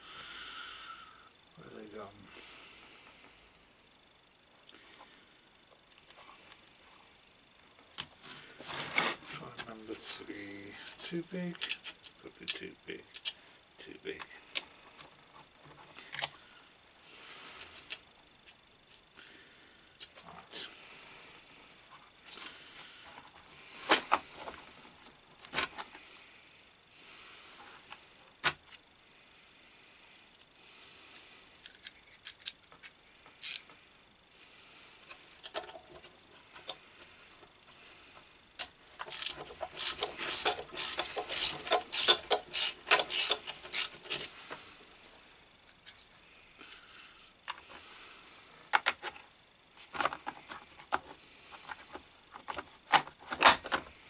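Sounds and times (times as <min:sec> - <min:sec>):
ratcheting screwdriver clicking: 0:31.6 - 0:33.6, 0:38.6 - 0:44.3
tools and parts knocking: 0:38.6 - 0:44.3.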